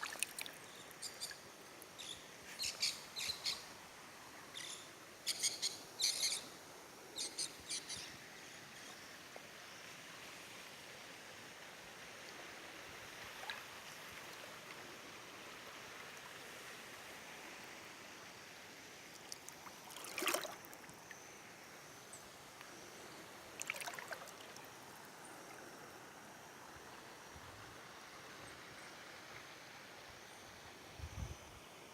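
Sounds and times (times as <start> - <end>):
river water rushing: 0.0 - 0.6, 19.8 - 20.7, 23.5 - 24.6.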